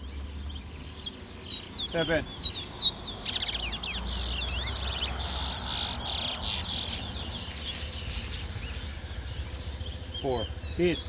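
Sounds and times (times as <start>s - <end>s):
finch singing whistles and chatter: 0.0s - 11.0s.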